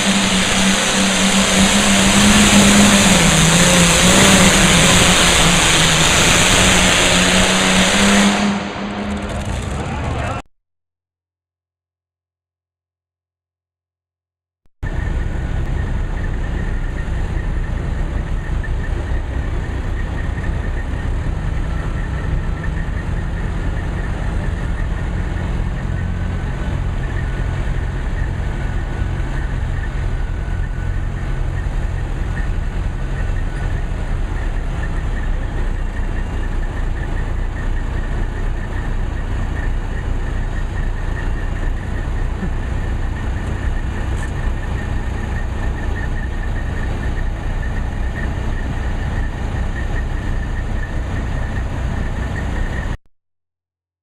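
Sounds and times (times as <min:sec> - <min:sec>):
tractor engine idling: 0:14.8 - 0:53.0.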